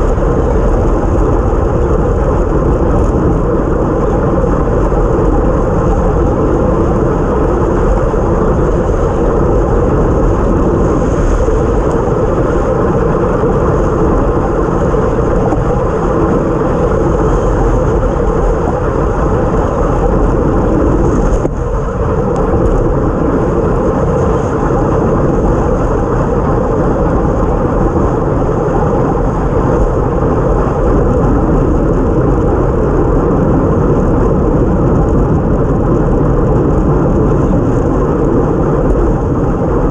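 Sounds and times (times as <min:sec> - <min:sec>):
bicycle road noise on wet road: 0:00.0 - 0:39.9
wind rushing: 0:00.0 - 0:39.9.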